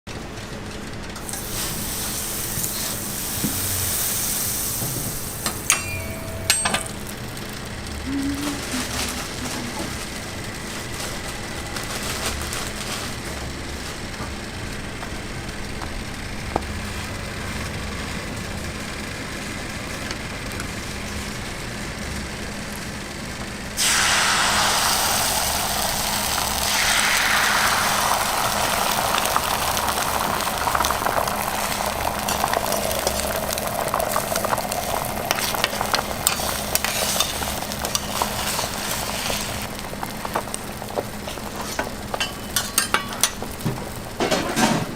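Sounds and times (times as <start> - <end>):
food sizzling in hot fat: 1.2 - 7.7, 23.8 - 44.3.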